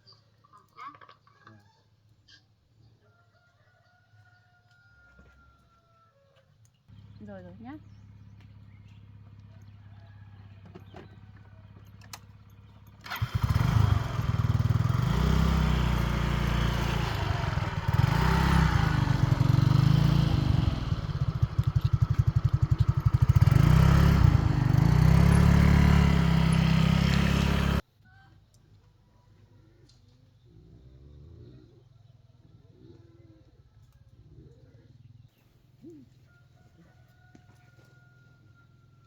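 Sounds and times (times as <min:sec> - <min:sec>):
motorbike engine revving: 0:10.8 - 0:27.8.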